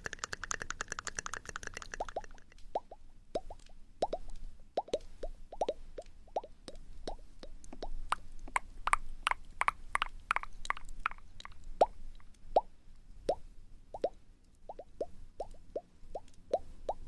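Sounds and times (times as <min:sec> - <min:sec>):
lip pops: 0:00.0 - 0:12.3
wet tongue clicks: 0:00.0 - 0:12.4.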